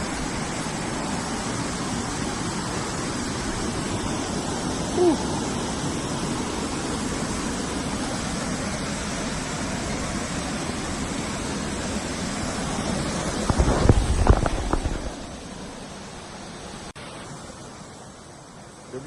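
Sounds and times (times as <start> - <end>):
waterfall rushing: 0.0 - 19.0
low bumps on microphone: 13.4 - 15.2.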